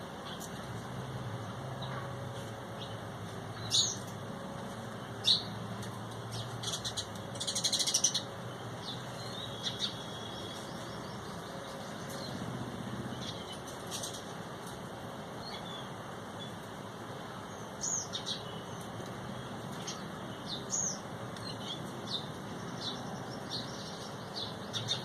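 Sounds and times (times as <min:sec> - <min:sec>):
bird calls and chattering: 0:06.2 - 0:14.3, 0:17.5 - 0:25.0.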